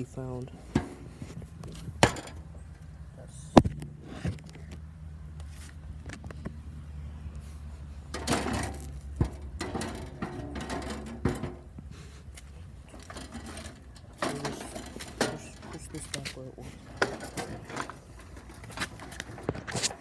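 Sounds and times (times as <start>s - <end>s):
metal parts clinking and knocking: 8.1s - 11.8s, 12.8s - 20.0s.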